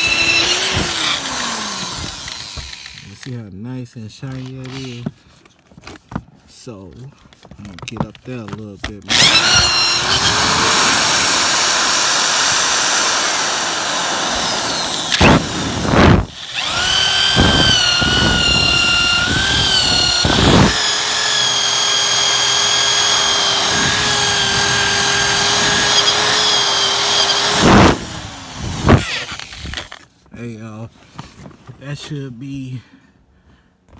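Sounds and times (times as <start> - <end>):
power drill scrubbing metal: 0.0 - 3.3, 4.3 - 5.1, 9.1 - 30.0.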